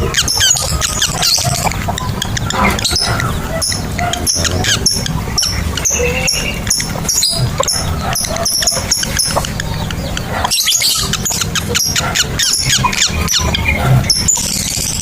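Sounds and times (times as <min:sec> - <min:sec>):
lovebirds chirping: 0:00.0 - 0:15.0.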